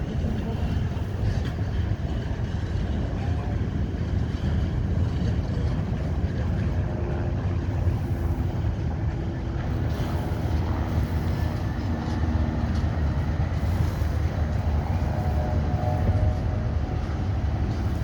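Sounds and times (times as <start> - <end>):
heavy vehicle rumbling: 0.0 - 18.0.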